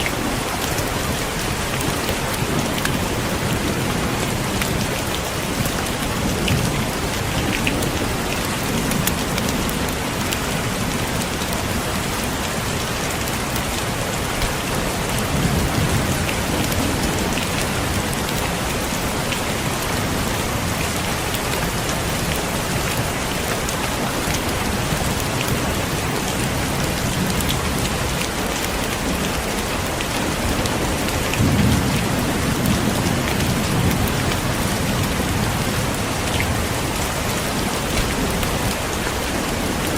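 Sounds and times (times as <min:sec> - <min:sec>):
heavy rain: 0:00.0 - 0:39.9
raindrops ticking: 0:20.2 - 0:39.9.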